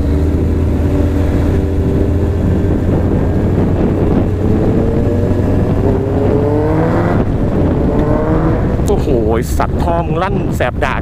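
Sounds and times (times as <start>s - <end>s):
motorcycle engine accelerating: 0.0s - 10.8s.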